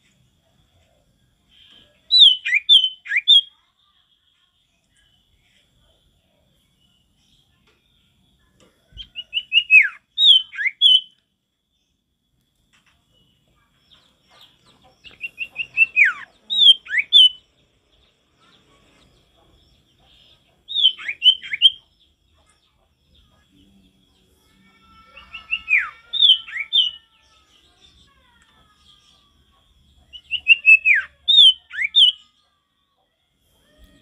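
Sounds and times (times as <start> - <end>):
bird singing: 0.0 - 34.0.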